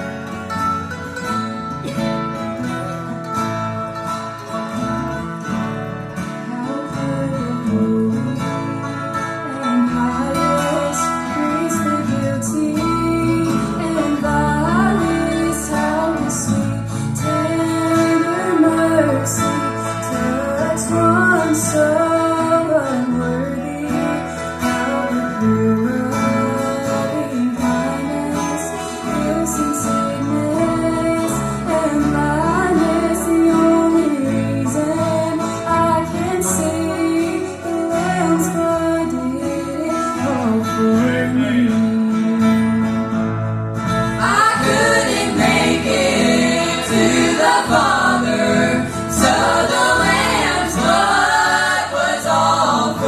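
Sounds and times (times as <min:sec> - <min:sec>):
guitar accompaniment: 0:00.0 - 0:53.0
gospel group singing: 0:44.2 - 0:53.0.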